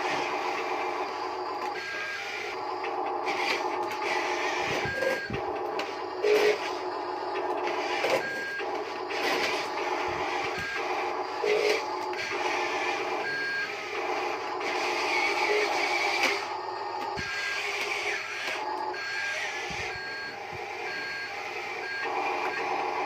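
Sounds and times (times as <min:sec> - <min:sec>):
small electric motors whining: 0:00.0 - 0:23.0
short electronic beeps: 0:04.3 - 0:05.4, 0:07.9 - 0:08.7.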